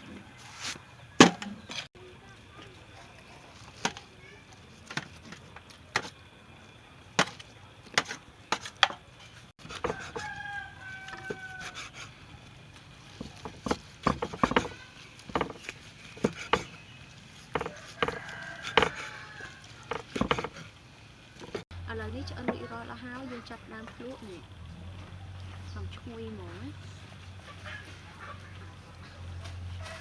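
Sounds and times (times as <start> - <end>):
knife chopping on wooden board: 9.6 - 10.3, 13.2 - 16.8, 17.5 - 19.1, 19.9 - 20.6
fowl-like call: 9.8 - 12.1.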